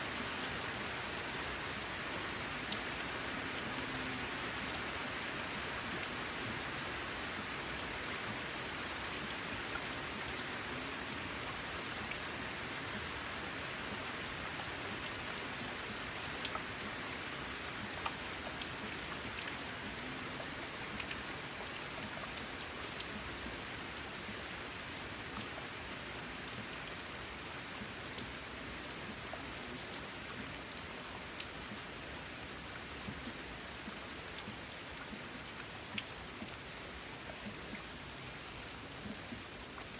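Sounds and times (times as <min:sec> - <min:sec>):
rain on a metal roof: 0:00.0 - 0:39.9
sharp drip ticks: 0:11.2 - 0:39.9.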